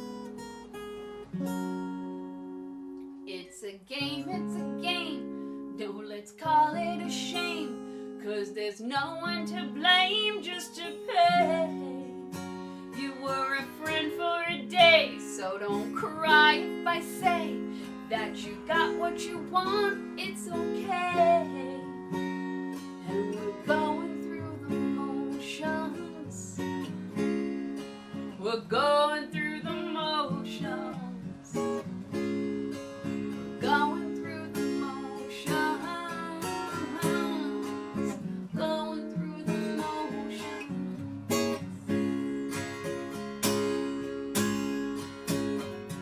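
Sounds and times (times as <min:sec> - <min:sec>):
acoustic guitar strumming chords: 0:00.0 - 0:46.0.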